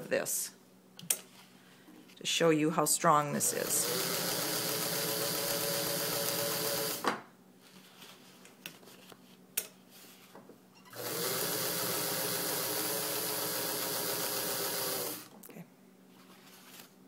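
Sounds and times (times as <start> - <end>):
sewing machine running: 3.4 - 7.0, 11.0 - 15.3.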